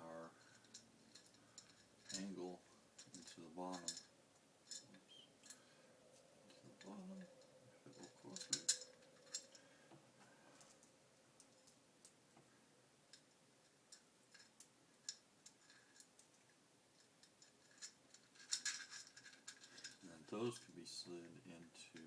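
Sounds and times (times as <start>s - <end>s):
metal parts clicking and tapping: 0.2s - 2.4s, 3.0s - 5.7s, 6.5s - 9.7s, 13.1s - 22.0s.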